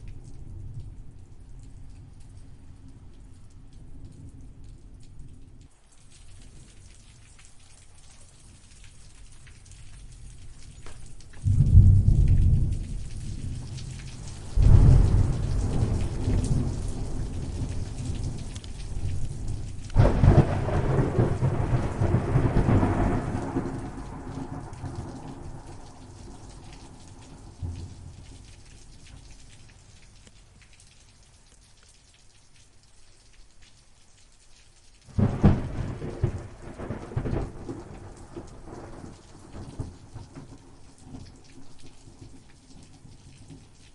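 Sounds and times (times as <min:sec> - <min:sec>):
rain falling steadily: 0:00.0 - 0:43.9
deep thunder rumbles: 0:11.2 - 0:28.5, 0:35.1 - 0:40.6.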